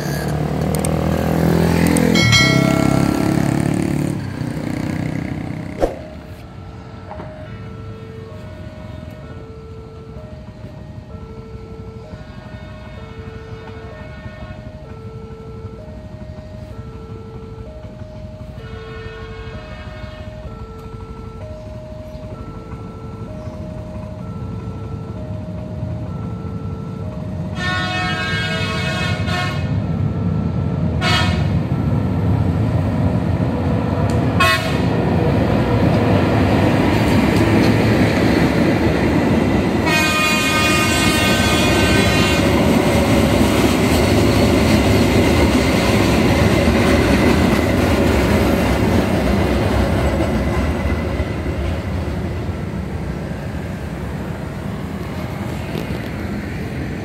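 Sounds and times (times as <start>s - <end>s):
train rumble: 10.0s - 57.0s
train horn blasts: 12.1s - 15.0s, 18.6s - 20.5s, 27.5s - 29.9s, 31.0s - 31.6s, 34.4s - 35.0s, 39.8s - 42.7s.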